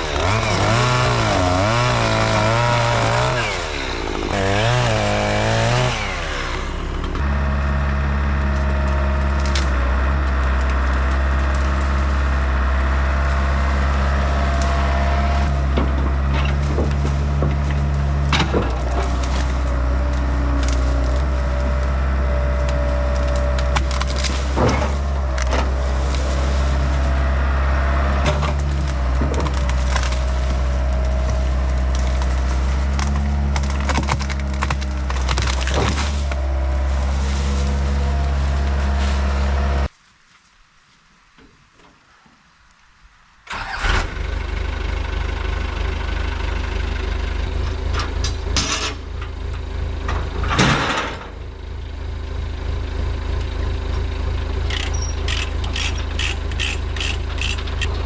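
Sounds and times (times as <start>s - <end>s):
excavator engine running: 0.0s - 39.9s, 43.5s - 58.0s
wood cracking and splintering: 0.0s - 40.0s, 53.2s - 58.0s.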